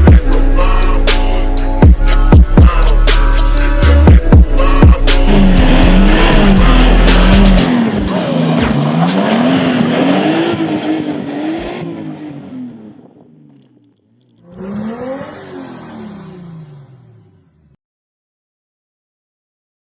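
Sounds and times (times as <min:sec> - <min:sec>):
car engine revving: 0:04.6 - 0:17.8
tyres squealing: 0:05.3 - 0:09.9.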